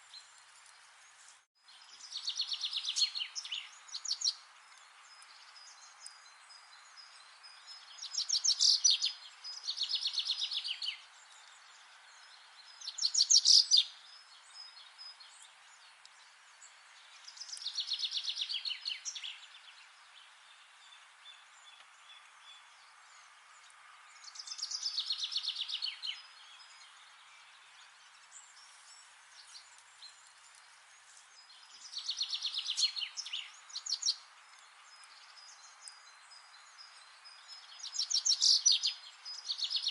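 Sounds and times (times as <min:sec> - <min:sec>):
faint background hiss: 0:00.0 - 0:39.9
songbird trilling: 0:08.0 - 0:11.0.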